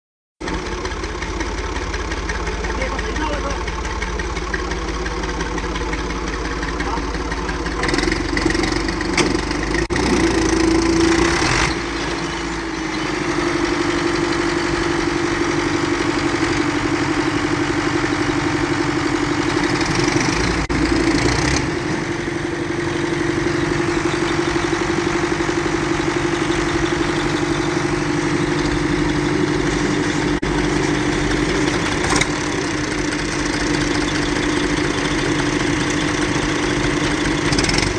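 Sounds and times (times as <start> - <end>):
diesel tractor engine idling: 0.4 - 37.9.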